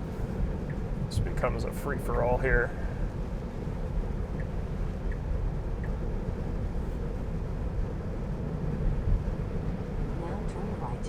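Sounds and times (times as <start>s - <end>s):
road and tyre rumble in car: 0.0s - 11.0s
faint ticks: 4.3s - 5.2s.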